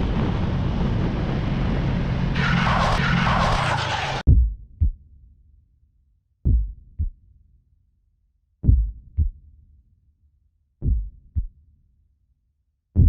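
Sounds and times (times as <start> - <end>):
heartbeat double thumps: 4.3 - 5.0, 6.5 - 7.2, 8.6 - 9.4, 10.8 - 11.5.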